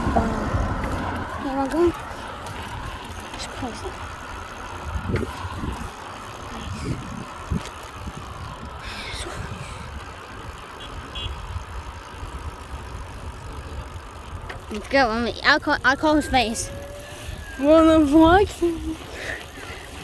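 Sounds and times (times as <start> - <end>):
bicycle knocks: 0.0 - 8.8, 11.8 - 15.8
bicycle riding rumble: 0.0 - 20.0.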